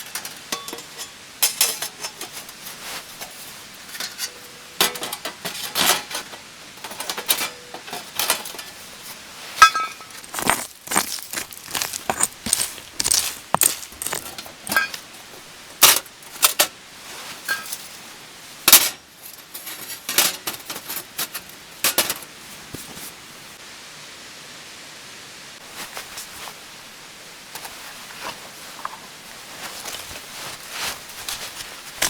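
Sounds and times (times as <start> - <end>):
faint hiss: 14.4 - 32.0.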